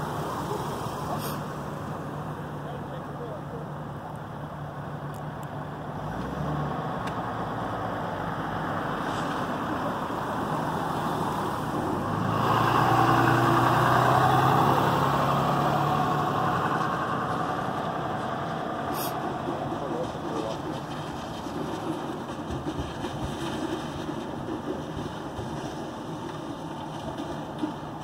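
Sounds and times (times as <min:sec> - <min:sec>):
truck engine idling: 0:00.0 - 0:06.0, 0:06.9 - 0:28.0
rushing noise: 0:07.7 - 0:28.0.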